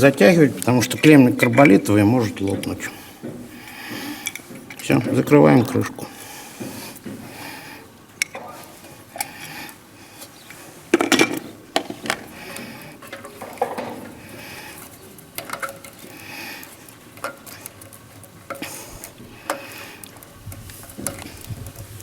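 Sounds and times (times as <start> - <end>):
metal tools clinking and tapping: 1.0 - 5.8, 11.0 - 14.2, 15.4 - 16.1.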